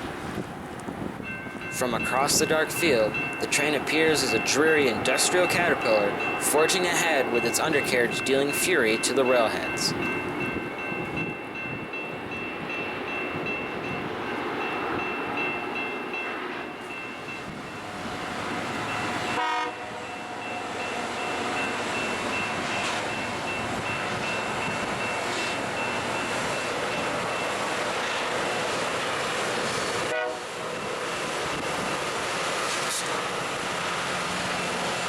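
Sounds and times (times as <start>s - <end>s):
horn blast: 19.4s - 20.0s, 30.1s - 30.6s.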